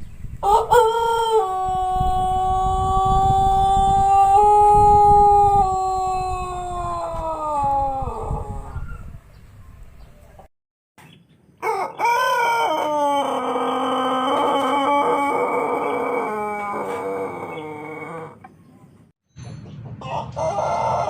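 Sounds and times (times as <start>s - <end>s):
rooster crowing: 0.4s - 9.2s, 11.6s - 18.4s, 20.0s - 21.0s.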